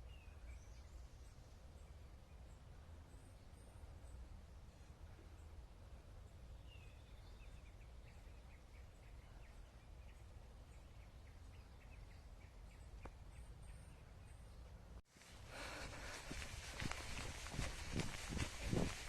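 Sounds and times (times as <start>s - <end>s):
bird chirping: 6.2s - 14.8s.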